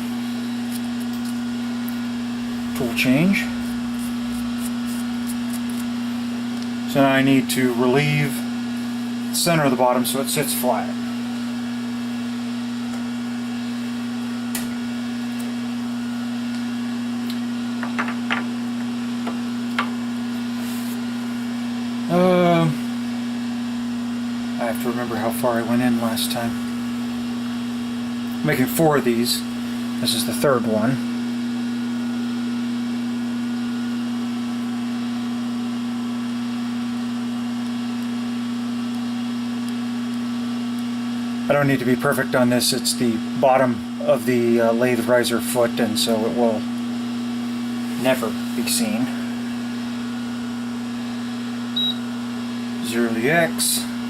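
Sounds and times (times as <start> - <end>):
metal lathe humming: 0.0 - 32.0.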